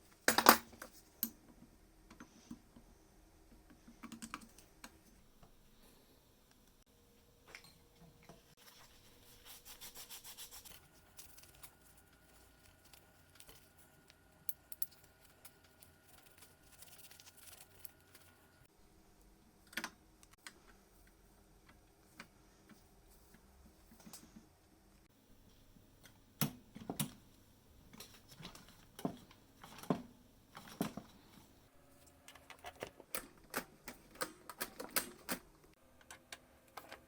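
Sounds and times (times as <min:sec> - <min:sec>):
faint rubbing and scratching: 0:08.5 - 0:14.1.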